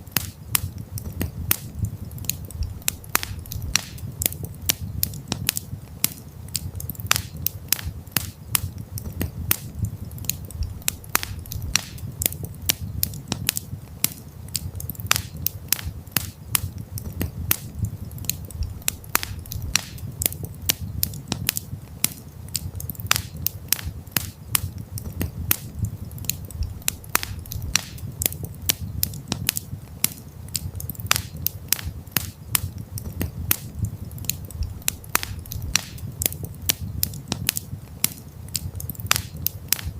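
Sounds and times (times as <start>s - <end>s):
campfire crackling and popping: 0.0s - 39.9s
low rumble of flames: 0.0s - 39.9s.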